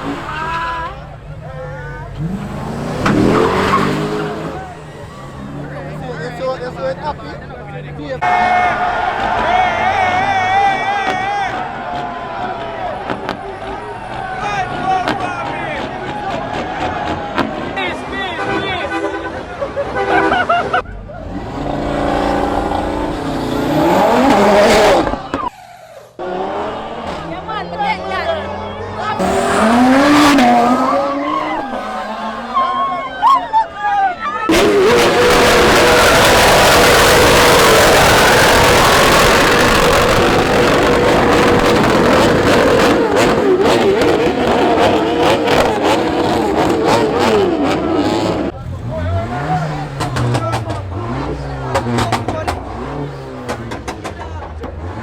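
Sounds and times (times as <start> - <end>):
car engine revving: 0.0 - 18.5, 20.8 - 25.5, 26.2 - 55.0
steady engine sound: 20.8 - 55.0
sharp engine pops: 51.7 - 52.7, 53.5 - 54.8.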